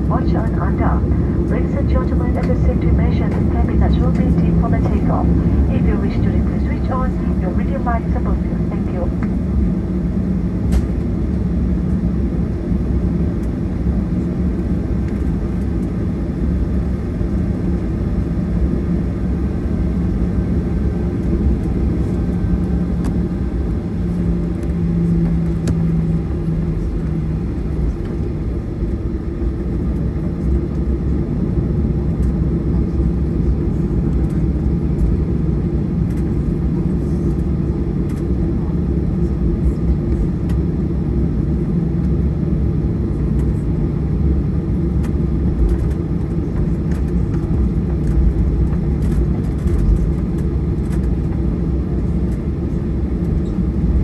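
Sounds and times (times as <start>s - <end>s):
low hum: 0.0s - 11.0s
jet engines rumbling in cabin: 0.0s - 54.0s.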